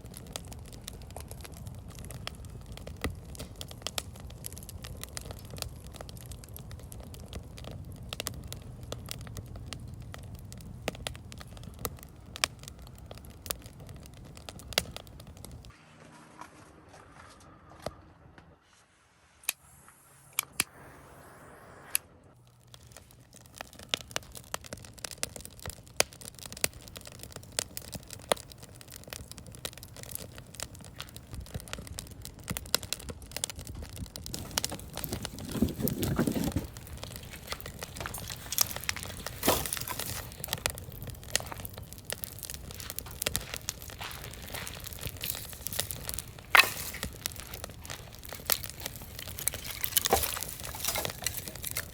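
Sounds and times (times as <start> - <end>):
wood fire crackling: 0.0 - 15.7, 22.3 - 51.9
sharp pops and snaps: 22.7 - 51.9.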